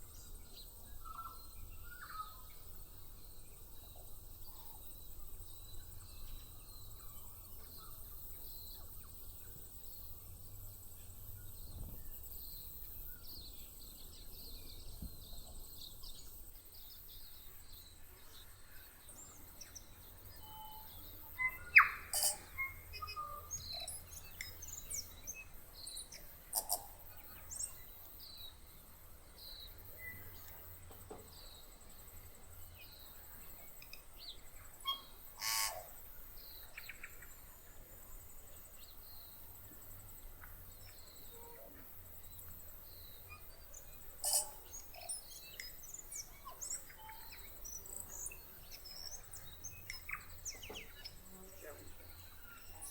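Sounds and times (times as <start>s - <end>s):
faint high bird chirps: 0.0s - 10.2s, 18.8s - 28.7s, 29.4s - 37.4s, 40.7s - 52.9s
bird singing with clicks: 20.3s - 28.2s, 33.7s - 35.9s, 44.2s - 51.2s.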